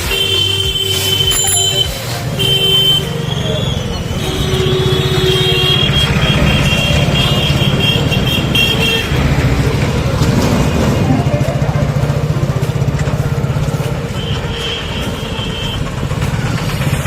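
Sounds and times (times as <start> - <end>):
vehicle engine running: 0.0 - 17.0
high-pitched double tone: 0.1 - 7.5.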